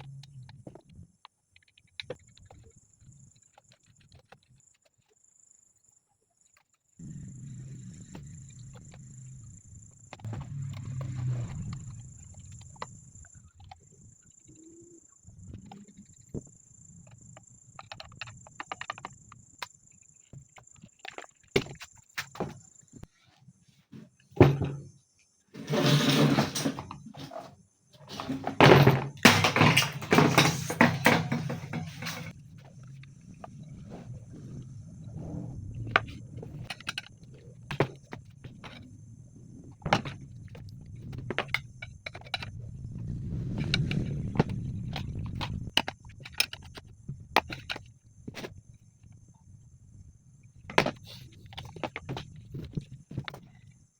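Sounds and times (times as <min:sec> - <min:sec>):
clicks and knocks of hand tools: 0:25.6 - 0:32.4.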